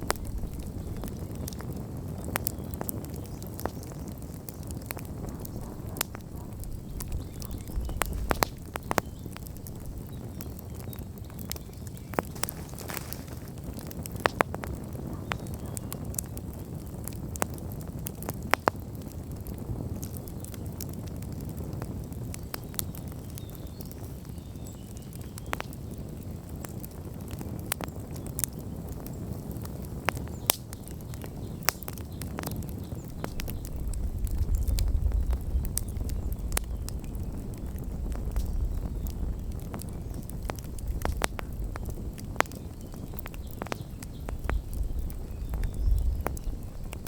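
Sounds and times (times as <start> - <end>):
low rush of flame: 0.0 - 24.2, 25.9 - 47.0
campfire crackles and pops: 0.0 - 47.0
deep low rumble: 5.0 - 9.6.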